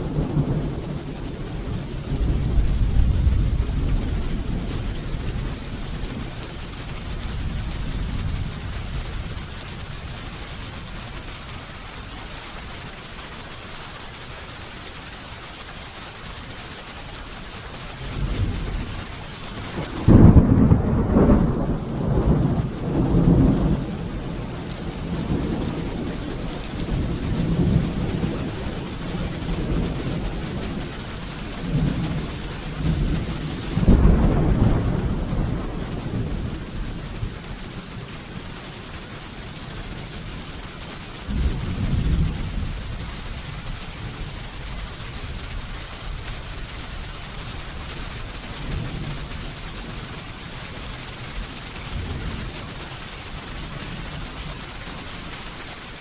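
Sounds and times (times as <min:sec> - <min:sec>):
rolling thunder: 0:00.0 - 0:10.2, 0:18.0 - 0:37.7, 0:41.2 - 0:45.1
steady rain falling: 0:00.0 - 0:56.0.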